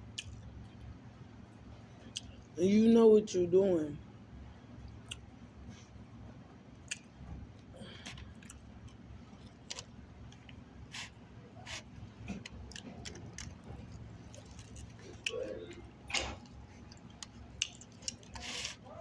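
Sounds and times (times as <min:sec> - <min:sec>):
low steady hum: 0:00.0 - 0:19.0
eating mouth noises: 0:10.9 - 0:19.0.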